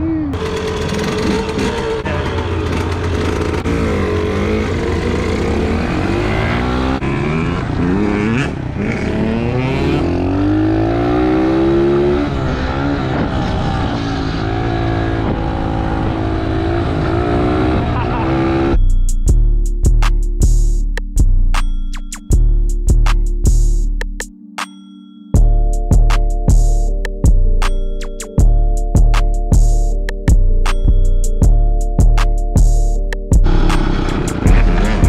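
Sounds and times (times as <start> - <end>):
dirt bike engines revving: 0.4 - 18.8, 33.4 - 35.0.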